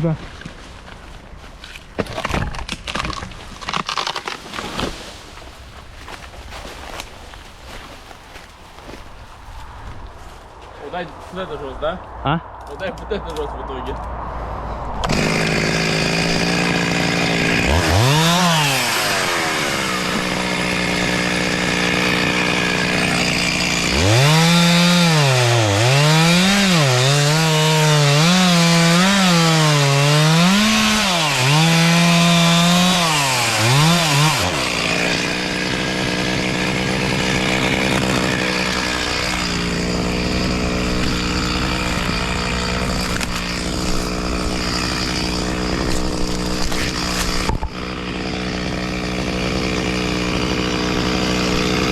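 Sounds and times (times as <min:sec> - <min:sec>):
chainsaw cutting wood: 0:02.0 - 0:05.0, 0:15.0 - 0:51.9.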